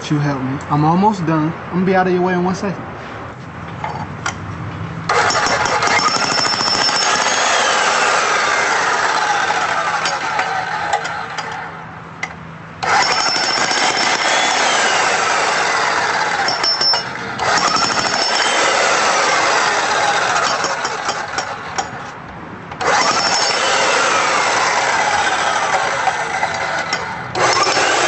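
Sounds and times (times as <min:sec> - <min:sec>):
jackhammer breaking rock: 0:05.1 - 0:11.6, 0:12.8 - 0:22.0, 0:22.8 - 0:28.0.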